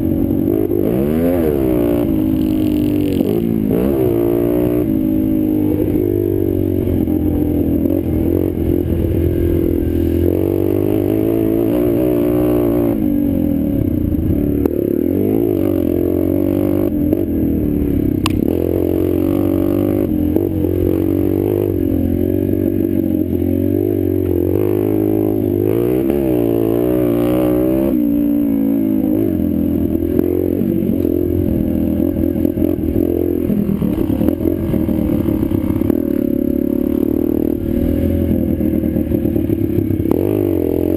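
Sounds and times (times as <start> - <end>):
pit bike engine revving: 0.0 - 40.9
sharp click: 18.2 - 18.4.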